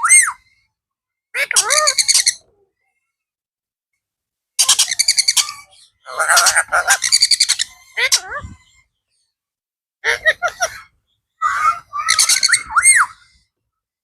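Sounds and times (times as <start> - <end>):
parakeet squawking: 1.4 - 2.4, 4.6 - 8.7, 10.1 - 13.2.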